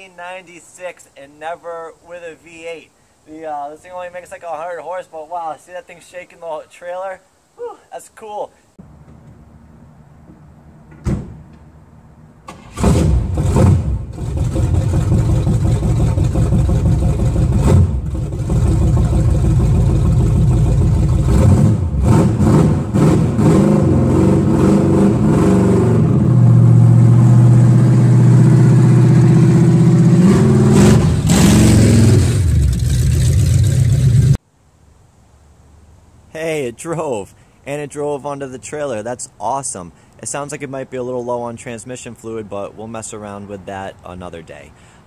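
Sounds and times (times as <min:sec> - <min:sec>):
car engine starting and revving: 0:12.4 - 0:34.4.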